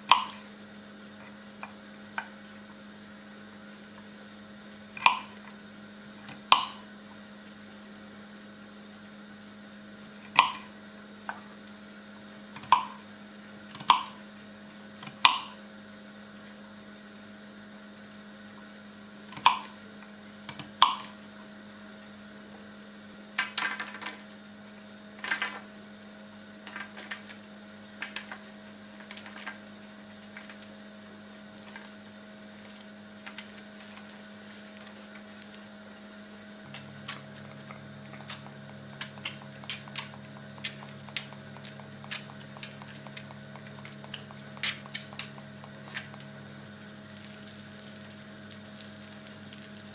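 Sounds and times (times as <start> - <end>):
lower appliance hum: 0.0 - 49.9
steady electrical hum: 0.0 - 49.9
small clicks and taps: 37.1 - 46.3.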